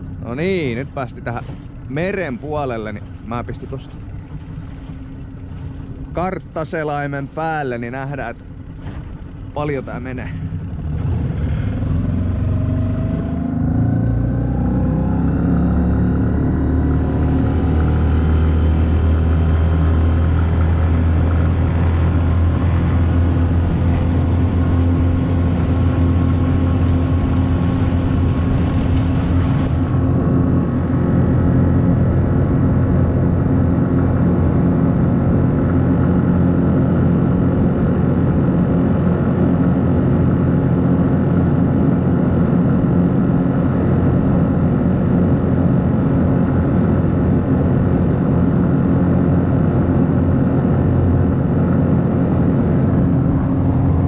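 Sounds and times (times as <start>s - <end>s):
outboard motor at full throttle: 0.0s - 54.0s.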